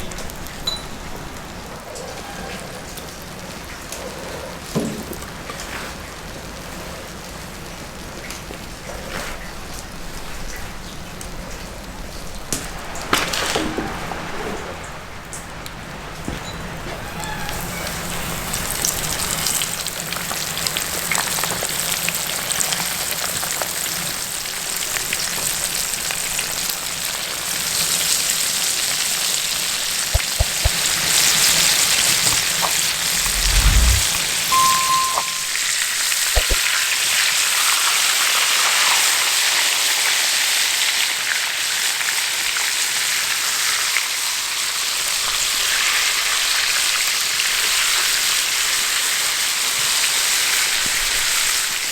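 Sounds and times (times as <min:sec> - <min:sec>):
low thump: 0:33.2 - 0:35.5.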